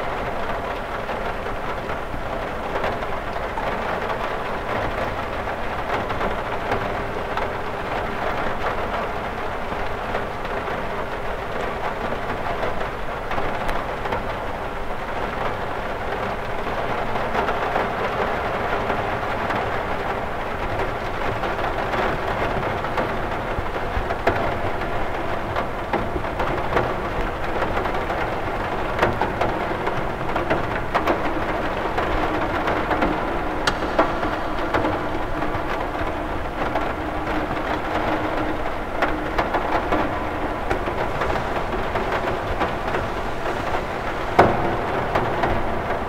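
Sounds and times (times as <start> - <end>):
rain on a window: 0.0 - 46.0.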